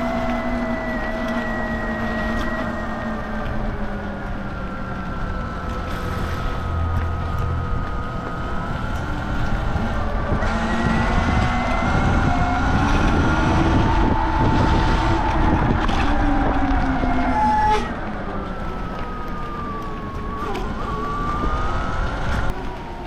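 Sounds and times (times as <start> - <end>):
electric motor whining: 0.0 - 22.7
tyres on wet road: 0.0 - 23.0
wind rushing: 8.4 - 17.2.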